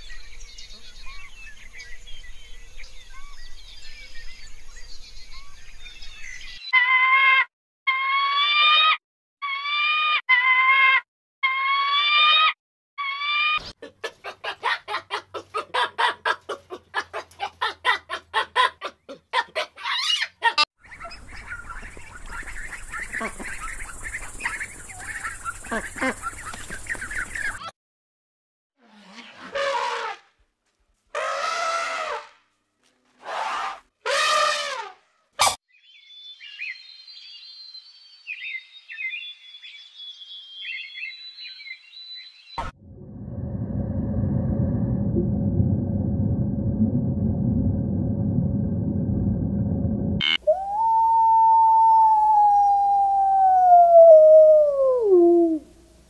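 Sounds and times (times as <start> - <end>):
hen clucking: 13.7 - 27.7
elephant trumpeting: 31.2 - 32.3, 33.2 - 35.5.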